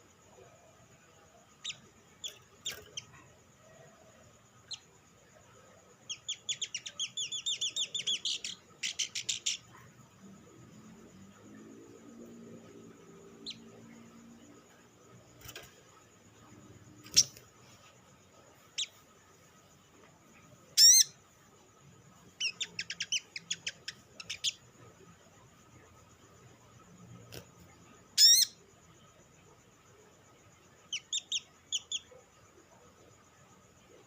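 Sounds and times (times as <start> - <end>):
bird chirping: 1.5 - 4.0, 4.6 - 12.0, 12.6 - 17.9, 18.6 - 21.2, 22.0 - 25.0, 27.3 - 28.6, 30.8 - 32.2.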